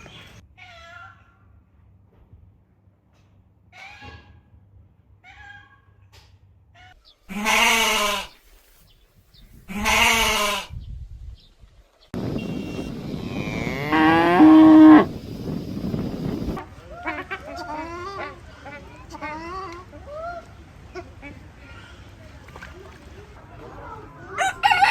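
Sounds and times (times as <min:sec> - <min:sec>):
farm animal bleating: 0:07.3 - 0:08.4, 0:09.7 - 0:10.7, 0:13.3 - 0:15.1.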